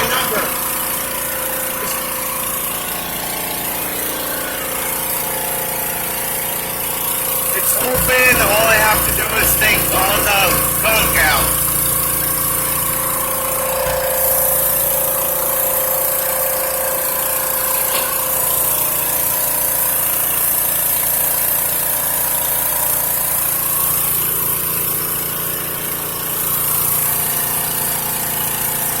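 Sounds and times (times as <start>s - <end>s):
high-pressure water pump hissing: 0.0s - 29.0s.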